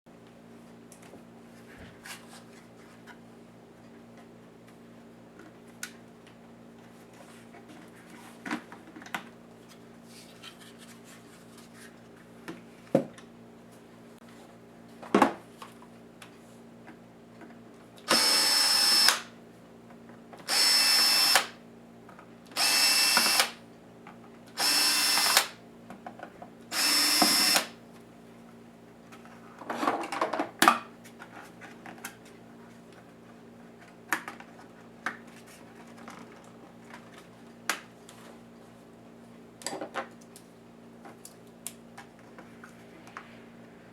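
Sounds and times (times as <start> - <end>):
electric screwdriver whirring: 18.1 - 19.3, 20.5 - 21.6, 22.6 - 23.6, 24.6 - 25.6, 26.7 - 27.8.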